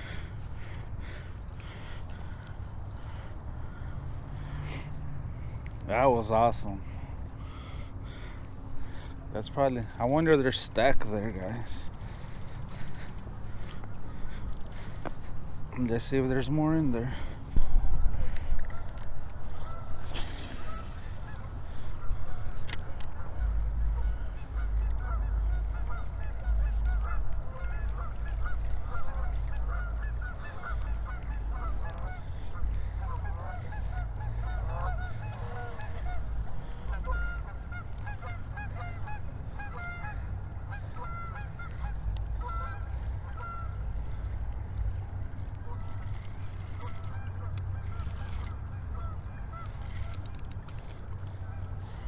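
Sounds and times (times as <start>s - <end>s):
steady low rumble: 0.0s - 52.0s
geese honking: 18.3s - 44.4s, 45.6s - 50.4s.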